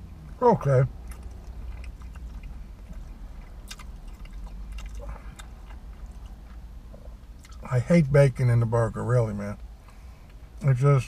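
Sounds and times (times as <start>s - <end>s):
steady low hum: 0.0s - 11.0s
man chewing with mouth clicks: 0.9s - 7.6s.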